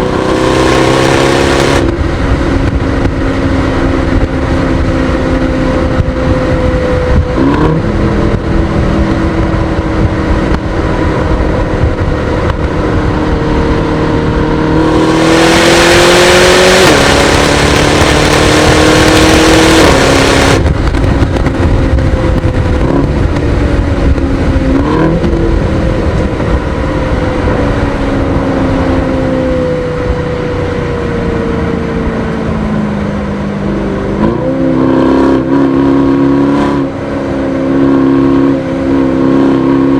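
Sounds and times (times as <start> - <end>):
car engine accelerating: 0.0 - 39.9
loud rushing noise: 0.0 - 39.9.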